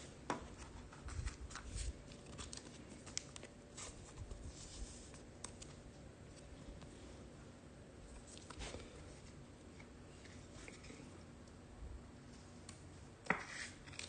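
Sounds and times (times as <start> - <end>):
cards being sorted by hand: 0.3 - 6.9.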